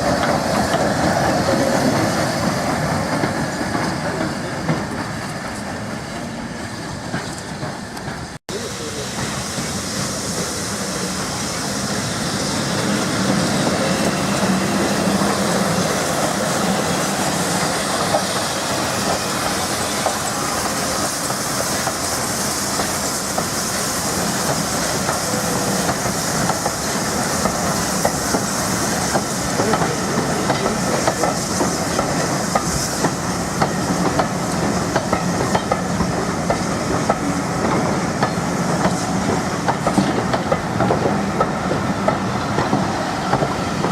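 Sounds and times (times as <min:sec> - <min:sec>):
train running along the line: 0:00.0 - 0:43.9
wheels clicking over rail joints: 0:29.1 - 0:43.9.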